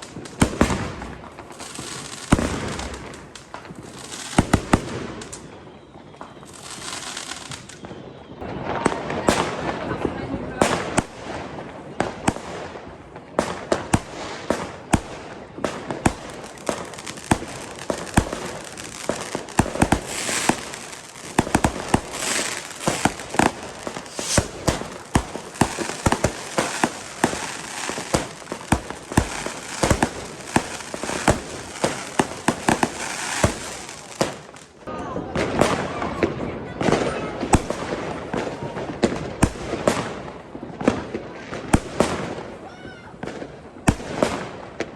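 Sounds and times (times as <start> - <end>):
firecracker bangs: 0.0 - 5.6, 13.4 - 34.6
fireworks crackling hiss: 0.0 - 9.6, 12.3 - 34.9
rocket reports: 17.9 - 34.2.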